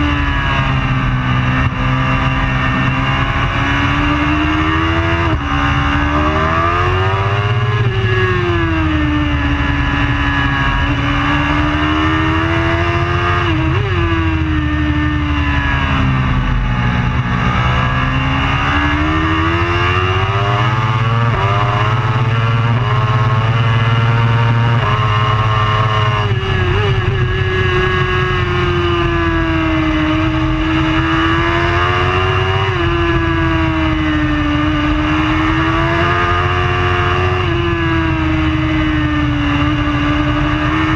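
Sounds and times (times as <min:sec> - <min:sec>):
racing motorcycle engine revving: 0:00.0 - 0:40.9.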